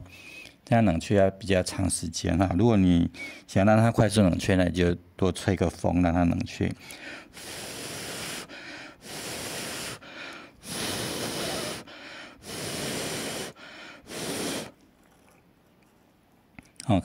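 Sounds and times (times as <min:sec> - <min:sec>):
person blowing on glue: 0:07.3 - 0:14.8
breaths drawn in: 0:07.4 - 0:14.8.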